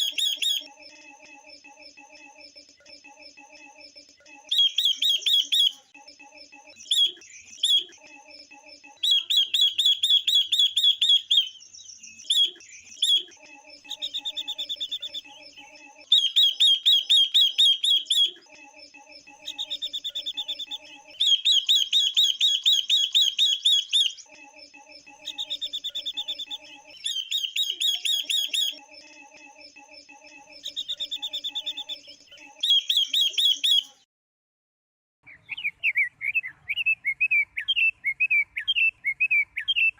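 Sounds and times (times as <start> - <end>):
high chattering bird trills: 0.0 - 0.7, 4.5 - 5.8, 6.8 - 8.1, 9.0 - 18.5, 19.2 - 24.3, 25.1 - 28.8, 30.5 - 34.0.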